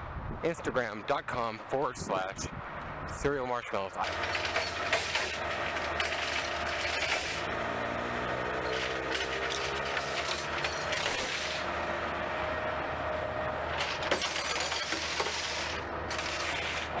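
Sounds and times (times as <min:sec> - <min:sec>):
vehicle engine running: 0:04.0 - 0:17.0.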